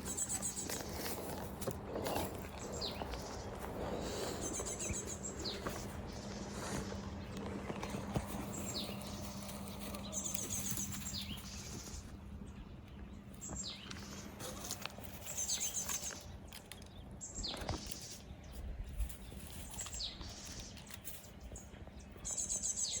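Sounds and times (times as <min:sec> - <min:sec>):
light rustling: 0:00.0 - 0:12.2
birds calling: 0:00.0 - 0:23.0
steady low hum: 0:00.0 - 0:23.0.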